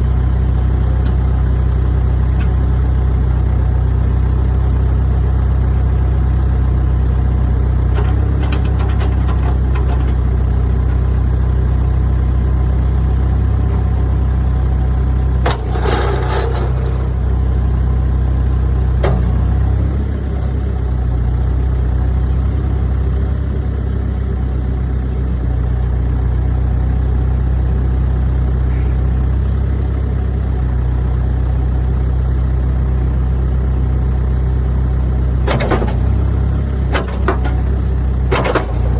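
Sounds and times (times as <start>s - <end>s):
diesel engine idling: 0.0s - 38.9s
sharp knocks: 36.9s - 38.9s.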